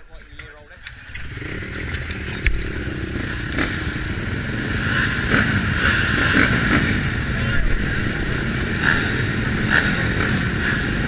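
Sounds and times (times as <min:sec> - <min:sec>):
sharp knocks and clatter: 0:00.2 - 0:02.9
motocross bike engine running hard: 0:00.9 - 0:11.0.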